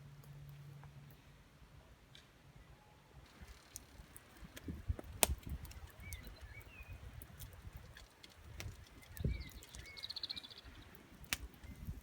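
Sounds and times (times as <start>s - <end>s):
faint birdsong chirps: 2.5s - 12.0s.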